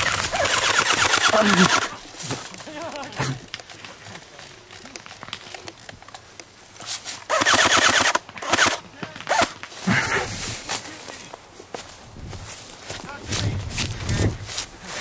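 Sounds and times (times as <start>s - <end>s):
airsoft gun full-auto burst: 0.0s - 2.0s, 7.3s - 9.6s.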